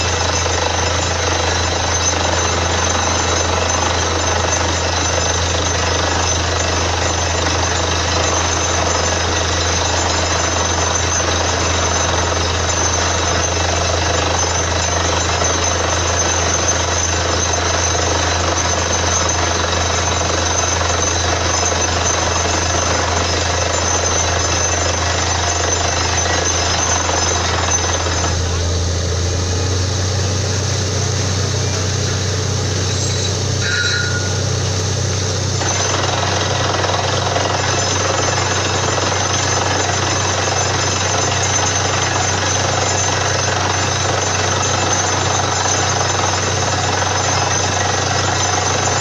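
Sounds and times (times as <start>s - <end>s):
drilling rig machine noise: 0.0s - 49.0s
steady low hum: 24.3s - 35.7s.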